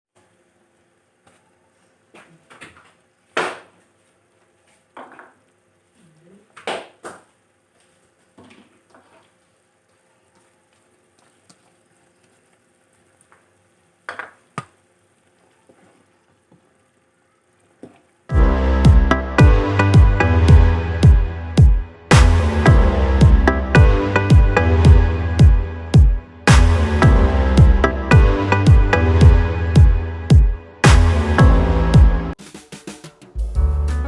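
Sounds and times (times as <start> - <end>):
electronic music with a beat: 18.3 - 34.0.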